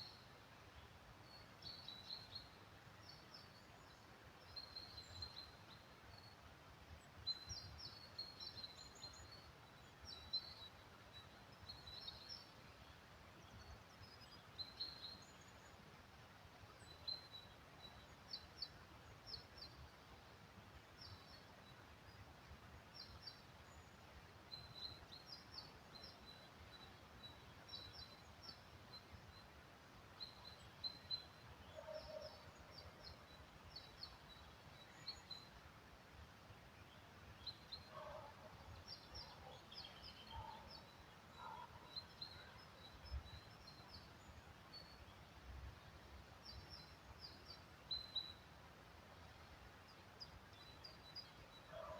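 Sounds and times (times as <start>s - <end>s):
small birds chirping: 20.8s - 35.7s, 36.4s - 51.9s.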